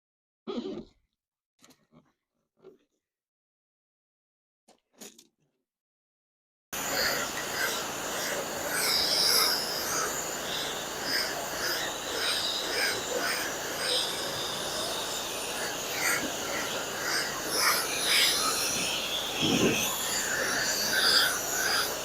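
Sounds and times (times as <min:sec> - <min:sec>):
water spray hissing: 0:06.8 - 0:22.0.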